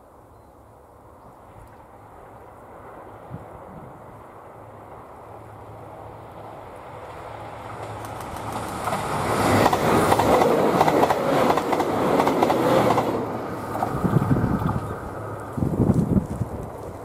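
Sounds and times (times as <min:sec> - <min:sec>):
diesel train engine: 0:00.9 - 0:17.0
train wheels clacking on rail joints: 0:07.8 - 0:14.0.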